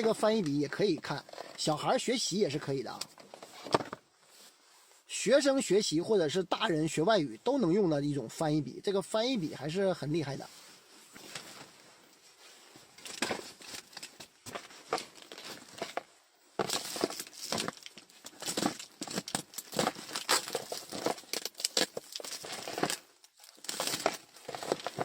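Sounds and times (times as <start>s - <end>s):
packaging crinkling and rustling: 11.2s - 25.0s
packaging tearing: 16.6s - 25.0s.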